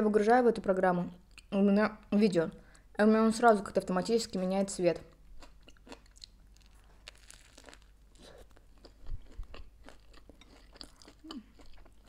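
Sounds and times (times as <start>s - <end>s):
crunching toasted bread: 5.5s - 12.0s.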